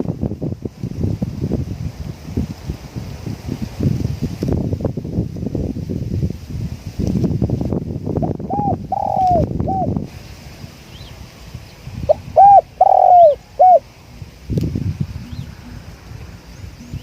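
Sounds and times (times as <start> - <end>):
wind rumble on microphone: 0.0 - 17.0
small birds chirping: 8.2 - 10.0, 10.8 - 14.2, 14.9 - 17.0
dove cooing: 8.5 - 9.9, 12.1 - 13.9.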